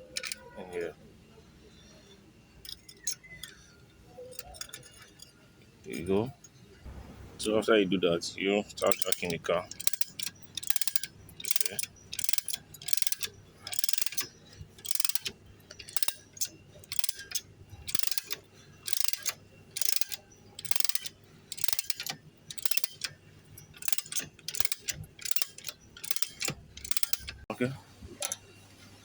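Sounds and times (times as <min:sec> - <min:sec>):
car jack ratcheting: 0:00.0 - 0:00.8, 0:02.6 - 0:06.2, 0:08.7 - 0:27.4.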